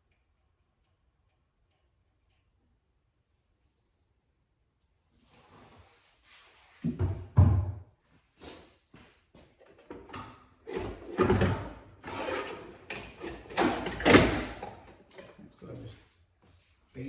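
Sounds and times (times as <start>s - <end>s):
clattering and scraping: 9.6s - 15.5s.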